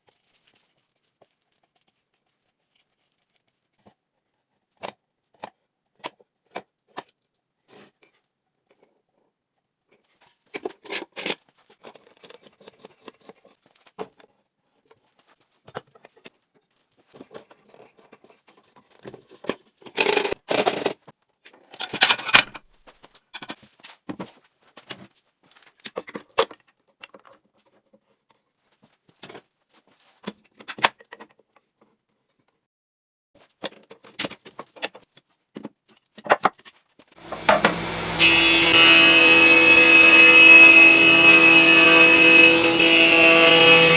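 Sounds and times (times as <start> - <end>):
objects knocking on a workbench: 37.3 - 37.9.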